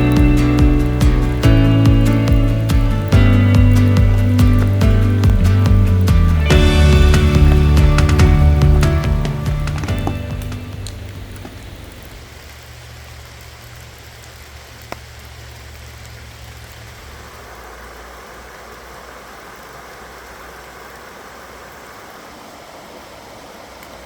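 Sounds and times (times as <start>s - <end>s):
vehicle engine idling: 0.0s - 14.0s
steady rain: 0.0s - 24.0s.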